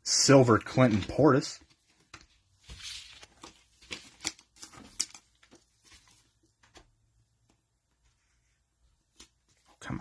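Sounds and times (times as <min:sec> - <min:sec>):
cards rustling: 0:00.4 - 0:06.8.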